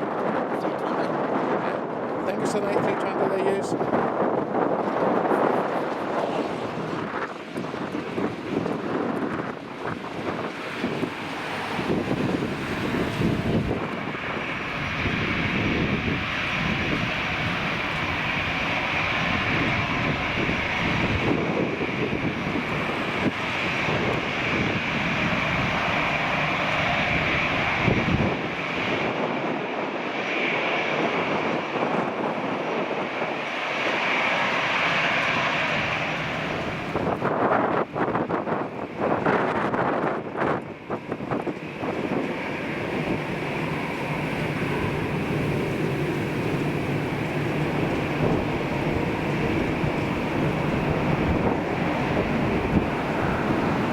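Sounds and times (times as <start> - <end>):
jet engines whining: 0.0 - 53.9
wind buffeting microphone: 0.0 - 53.9.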